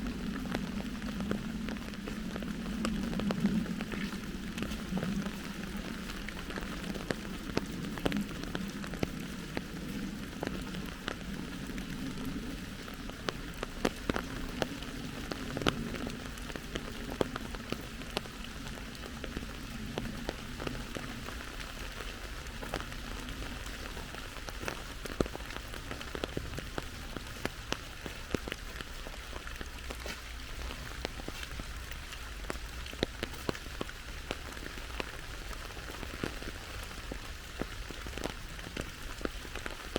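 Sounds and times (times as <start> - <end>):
low rumble: 0.0 - 16.4
rain falling: 0.0 - 39.9
sharp raindrops landing close: 0.0 - 39.9.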